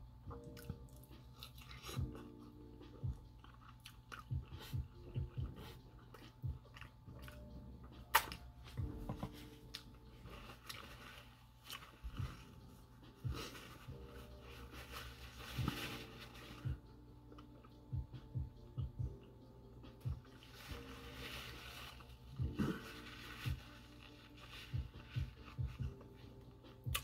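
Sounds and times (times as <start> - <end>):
chewing food: 0.3 - 8.9.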